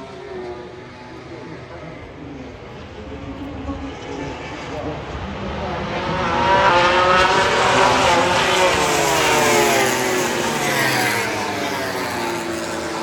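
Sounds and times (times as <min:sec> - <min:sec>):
racing motorcycles passing at speed: 0:03.3 - 0:13.0.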